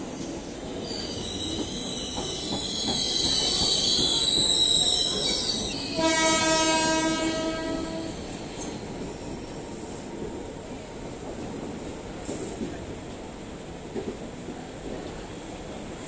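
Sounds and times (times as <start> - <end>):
passenger coaches rolling past: 0.0 - 16.0
train horn: 5.9 - 8.2.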